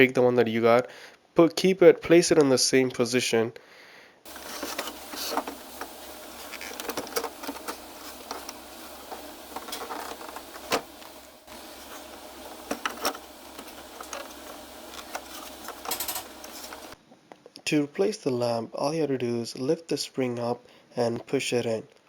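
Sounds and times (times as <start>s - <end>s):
steady low hum: 4.3s - 17.0s.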